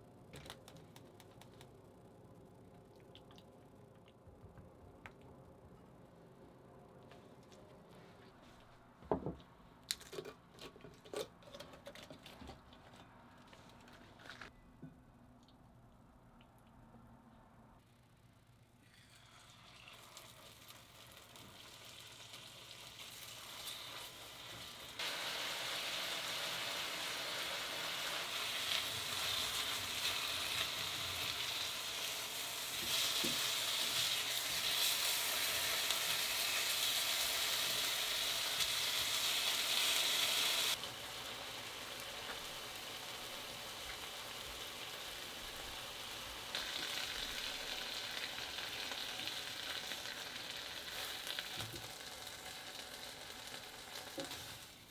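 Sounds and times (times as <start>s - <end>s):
food sizzling in a pan: 19.0s - 54.9s.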